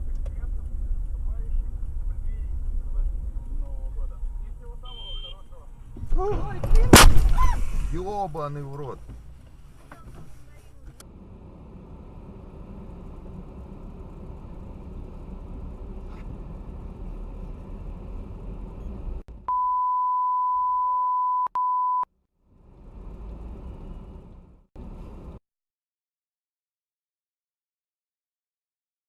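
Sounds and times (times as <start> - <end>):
road and engine rumble: 0.0 - 19.8, 22.3 - 25.4
loud electronic beep: 4.8 - 5.4, 19.5 - 22.0.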